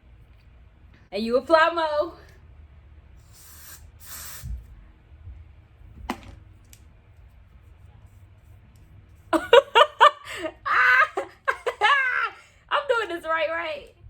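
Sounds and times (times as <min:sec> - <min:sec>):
woman's voice in choppy bursts: 0:12.7 - 0:14.0.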